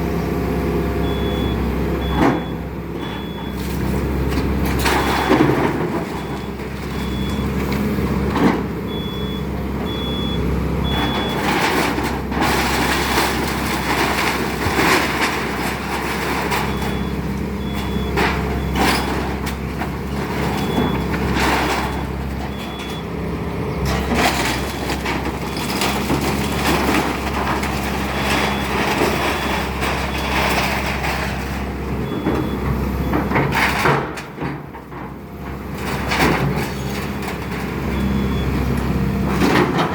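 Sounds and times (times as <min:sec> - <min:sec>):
excavator diesel engine running: 0:00.0 - 0:39.9
cracks and crashes of demolition: 0:03.2 - 0:10.0, 0:10.8 - 0:23.2, 0:23.8 - 0:39.9.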